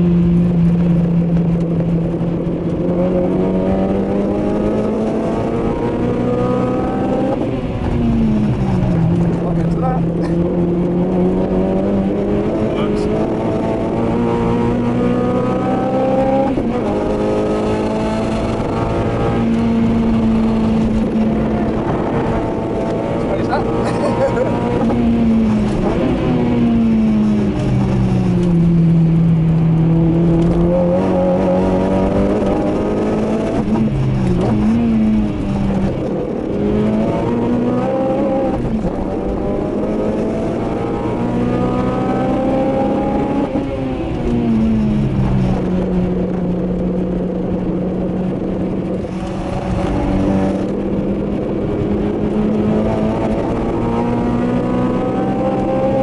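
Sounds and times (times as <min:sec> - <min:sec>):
car engine revving hard: 0:00.0 - 0:56.0.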